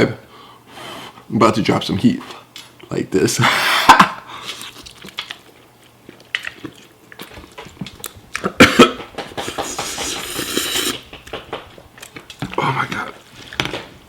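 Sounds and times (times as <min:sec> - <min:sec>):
long hissing breath: 0:09.4 - 0:11.0.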